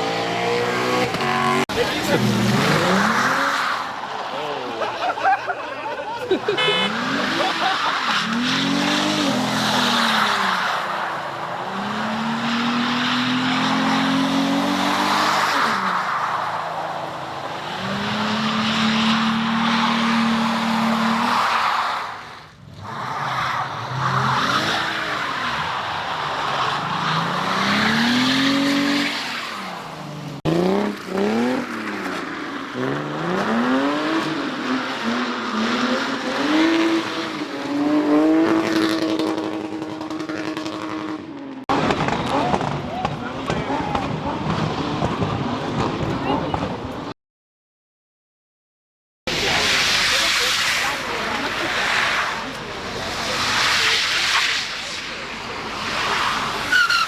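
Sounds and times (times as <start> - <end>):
car engine revving: 0.0 - 3.7, 23.9 - 46.1
tyres squealing and skidding: 0.0 - 38.6, 49.3 - 57.0.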